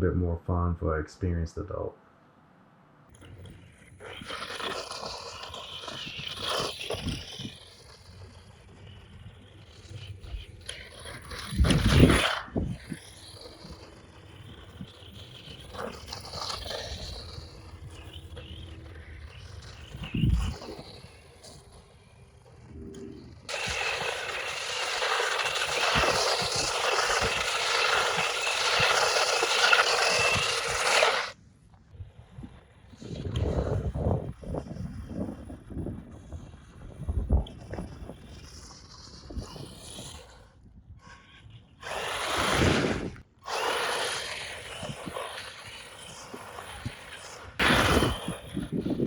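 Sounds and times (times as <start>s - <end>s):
faint motor whine: 0.0s - 49.0s
toy car rattling over ground: 3.1s - 31.4s, 32.1s - 40.7s, 41.5s - 49.0s
tyres on gravel: 3.2s - 31.4s, 41.8s - 49.0s.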